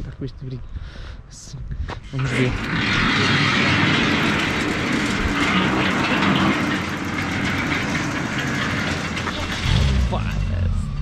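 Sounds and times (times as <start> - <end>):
car engine running low speed: 9.3 - 11.0.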